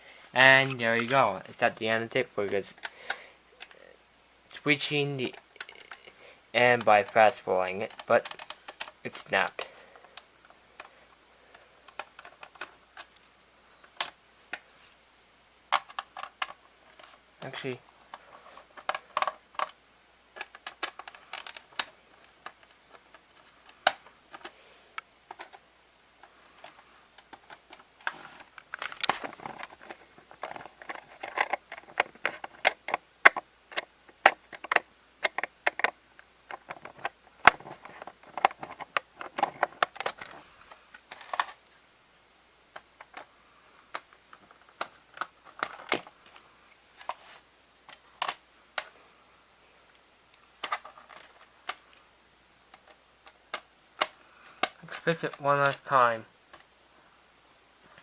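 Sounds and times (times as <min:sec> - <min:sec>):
plastic cassette clicks: 0:06.8 - 0:10.9, 0:15.7 - 0:18.2, 0:18.8 - 0:19.8, 0:20.4 - 0:25.6, 0:26.6 - 0:41.6, 0:43.9 - 0:46.4, 0:47.9 - 0:48.9, 0:50.4 - 0:51.9, 0:52.7 - 0:55.9
tape rustling: 0:26.2 - 0:41.6.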